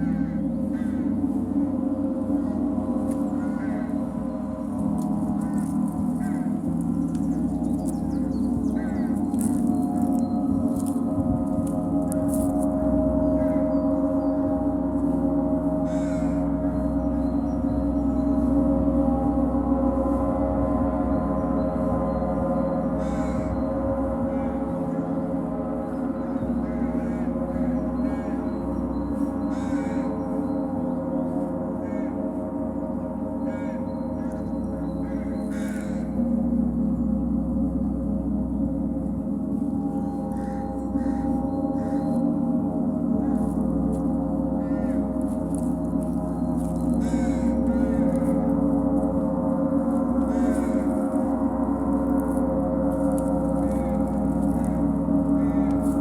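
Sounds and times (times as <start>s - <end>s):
gong ringing: 0.0s - 56.0s.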